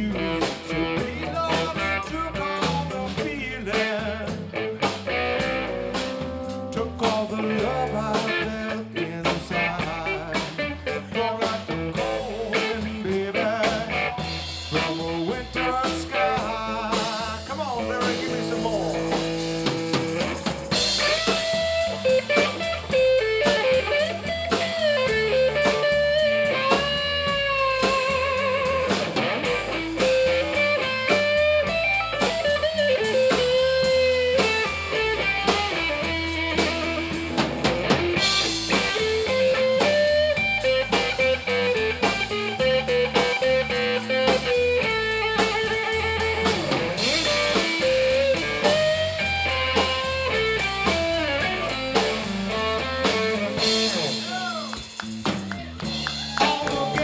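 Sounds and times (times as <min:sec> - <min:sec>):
bass guitar: 0:00.0 - 0:57.0
drum kit: 0:00.0 - 0:57.0
electric guitar solo: 0:18.0 - 0:57.0.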